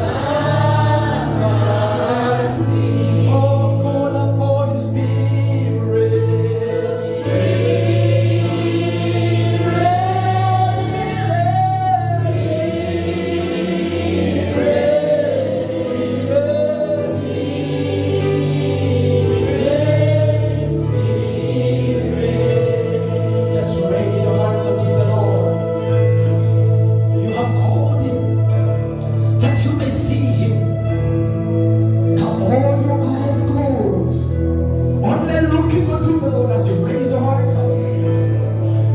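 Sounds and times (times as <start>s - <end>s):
choir singing gospel song: 0.0s - 38.9s
low accompaniment: 0.0s - 38.9s.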